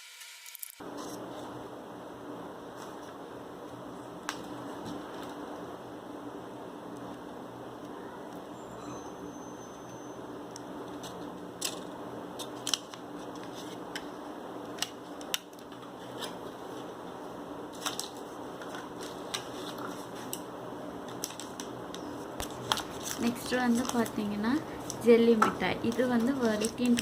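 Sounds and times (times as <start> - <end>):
steady low hum: 0.8 - 27.0
snack packaging crinkling: 17.8 - 20.5, 21.1 - 25.0.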